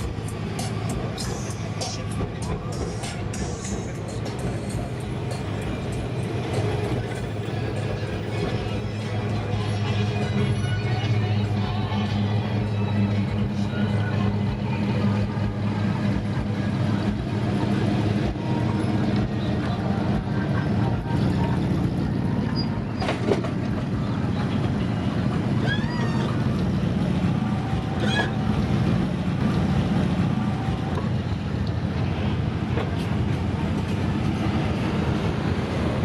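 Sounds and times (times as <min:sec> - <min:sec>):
car engines rumbling: 0:00.0 - 0:36.0.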